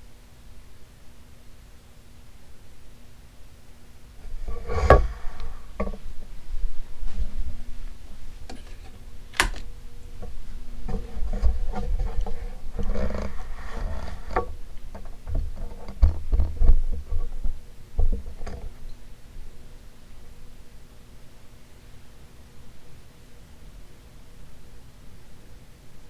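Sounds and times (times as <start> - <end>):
ceiling fan motor hum: 0.0 - 26.0
light clicks and knocks: 4.2 - 6.3, 7.0 - 19.0
sharp click: 9.3 - 9.7.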